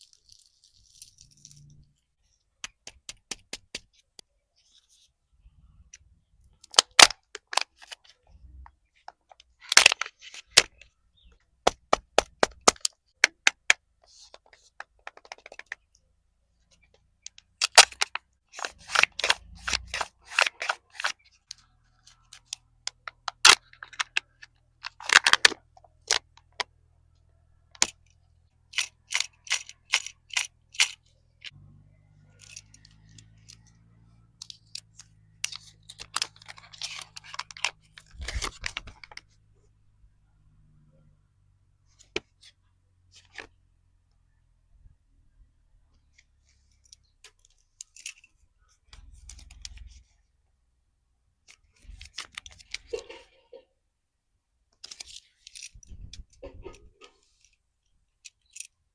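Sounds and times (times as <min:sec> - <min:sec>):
wrappers crinkling: 0:00.0 - 0:01.9.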